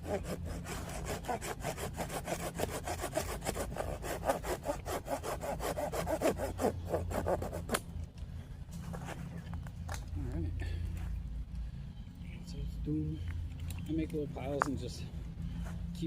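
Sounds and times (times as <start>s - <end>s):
hand saw cutting wood: 0.0s - 7.8s.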